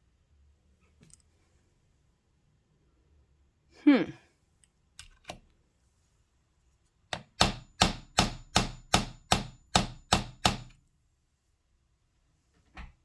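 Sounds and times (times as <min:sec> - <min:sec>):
hammer tapping on screwdriver: 0:07.1 - 0:10.8.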